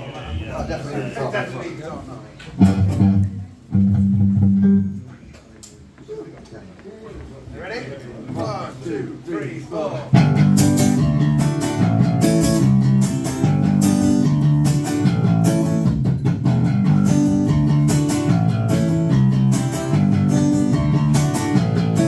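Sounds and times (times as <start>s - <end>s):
rock band playing: 2.6s - 5.1s, 10.2s - 22.0s.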